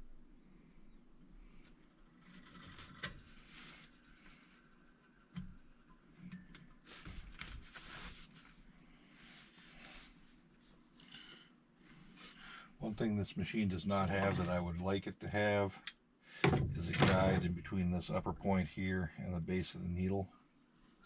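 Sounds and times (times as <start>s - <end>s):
light clicks and rustles: 1.4s - 8.7s.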